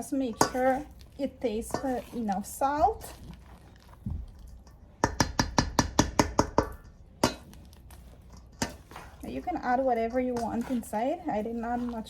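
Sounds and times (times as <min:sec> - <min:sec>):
utensil tapping against bowl: 0:05.0 - 0:07.4.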